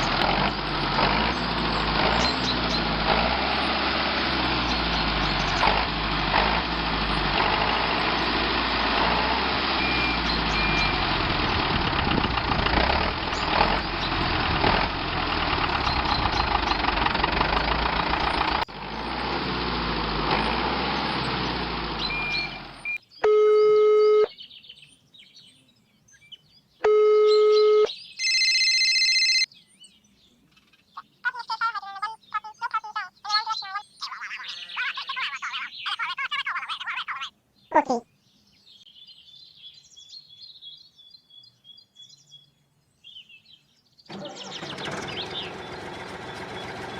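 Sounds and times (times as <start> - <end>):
small motor grinding rattle: 0.0 - 22.8, 44.1 - 46.9
electronic beeps: 9.8 - 11.1, 22.1 - 24.3.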